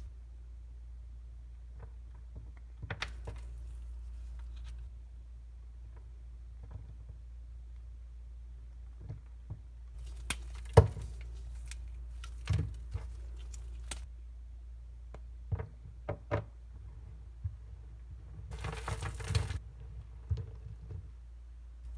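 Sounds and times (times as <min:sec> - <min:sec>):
dry soap cracking and crumbling: 0:03.0 - 0:04.8, 0:10.0 - 0:14.1, 0:18.5 - 0:19.6.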